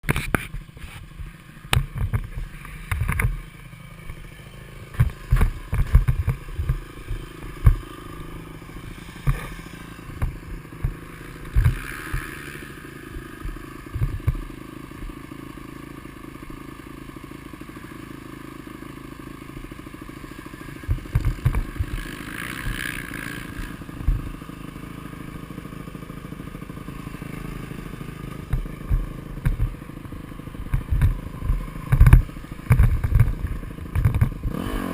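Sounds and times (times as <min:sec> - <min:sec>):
dirt bike engine running: 0:00.0 - 0:34.9
low thumps and buffeting: 0:04.9 - 0:12.5, 0:13.1 - 0:15.2, 0:20.8 - 0:22.8, 0:23.4 - 0:24.4, 0:28.0 - 0:34.6.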